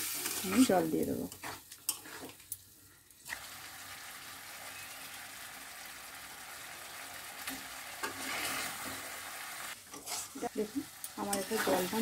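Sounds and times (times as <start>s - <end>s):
spatula stirring and scraping: 0.0s - 2.5s, 7.4s - 12.0s
curry sizzling: 0.0s - 12.0s.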